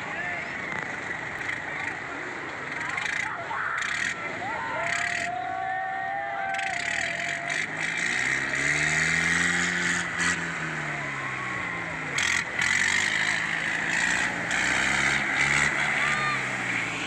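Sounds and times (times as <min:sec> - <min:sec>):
tractor diesel engine revving: 0:06.5 - 0:17.0.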